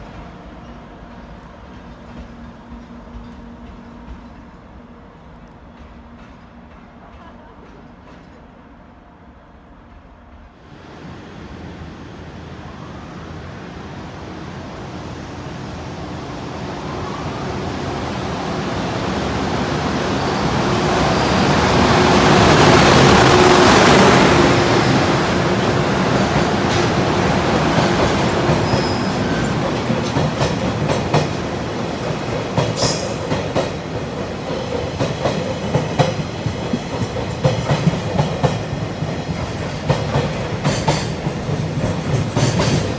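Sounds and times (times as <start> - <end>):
freight train passing: 0.0 - 42.9
wheels clacking over rail joints: 20.4 - 42.9.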